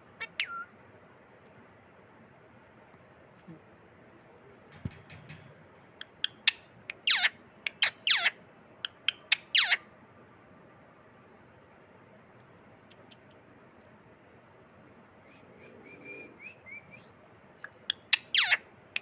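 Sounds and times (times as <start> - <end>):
parrot chirping: 0.2 - 0.7, 6.0 - 9.8, 17.6 - 19.0
parrot screeching: 0.2 - 0.7, 7.1 - 8.4, 9.5 - 9.8, 18.3 - 18.6.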